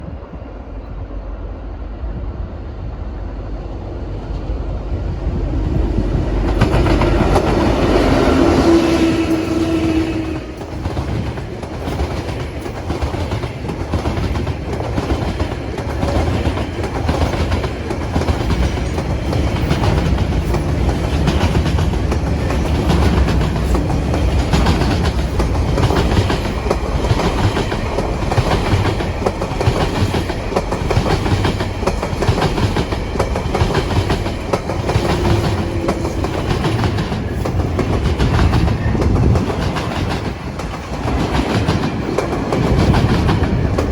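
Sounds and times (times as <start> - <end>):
freight train rumbling past: 0.0 - 43.9
wheels clacking over rail joints: 6.1 - 43.9.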